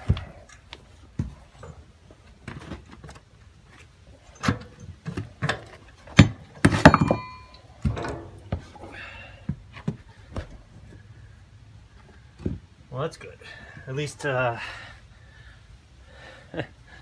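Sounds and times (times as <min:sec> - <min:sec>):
metal tools knocking and clanking: 0:04.3 - 0:08.8.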